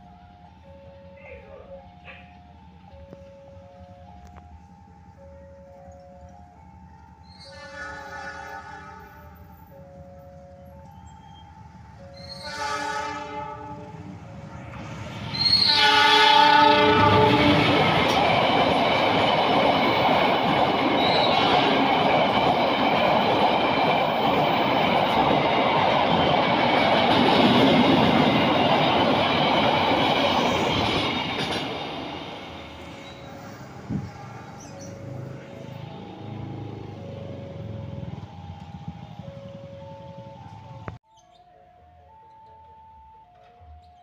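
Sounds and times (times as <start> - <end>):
train wheels rumbling: 1.9 - 41.0
locomotive horn blasts: 7.3 - 9.5, 12.2 - 14.2, 15.4 - 17.8
wheels clacking over rail joints: 13.6 - 34.8.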